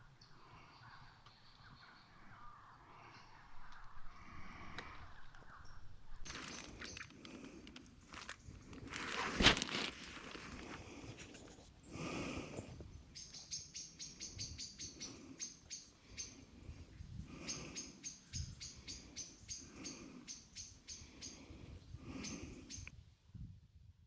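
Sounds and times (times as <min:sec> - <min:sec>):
small bird chirping: 0:05.1 - 0:07.2, 0:12.6 - 0:21.5, 0:22.1 - 0:22.9
soft rustling: 0:06.2 - 0:11.8.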